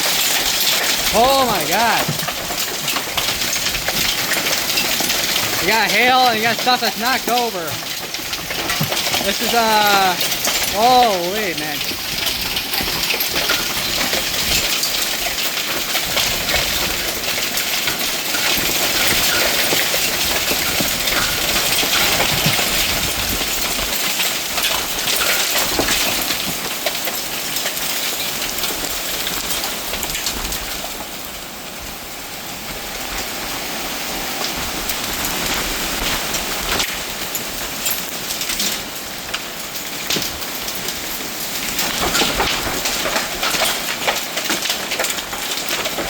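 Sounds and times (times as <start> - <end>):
hail pelting hard surfaces: 0.0 - 46.0
rain: 0.0 - 46.0.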